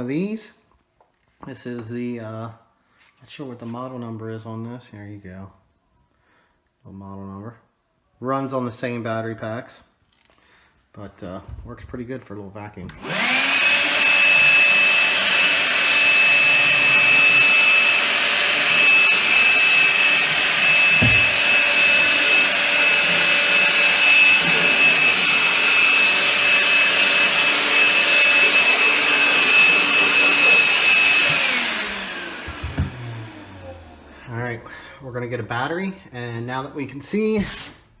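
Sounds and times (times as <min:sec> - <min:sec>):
handheld vacuum whining: 0:12.9 - 0:34.3.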